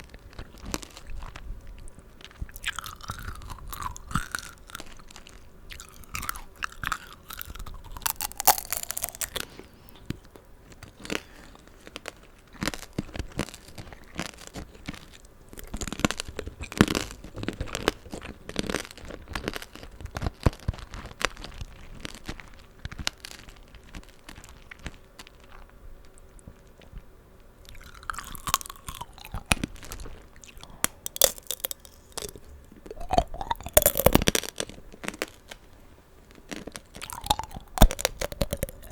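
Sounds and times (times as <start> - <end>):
wet chewing: 2.2 - 10.2, 27.6 - 35.4, 36.5 - 38.9
candy shell crackling: 2.5 - 9.6, 27.7 - 35.6, 36.4 - 38.9.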